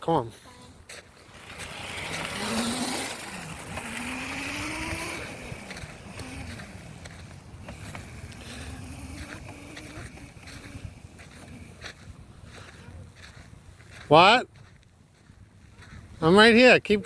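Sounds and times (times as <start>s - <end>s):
electric motor whining: 0.6s - 12.1s
wind noise: 0.6s - 14.0s
tyre noise: 0.8s - 14.1s.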